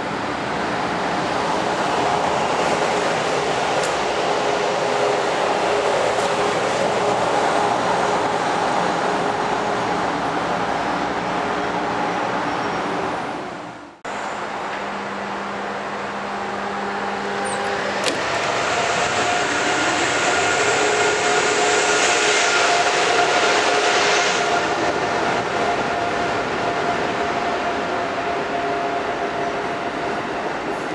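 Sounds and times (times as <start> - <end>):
electric trains humming and hissing: 0.0 - 30.9
electric motors and blowers whining: 14.3 - 30.8.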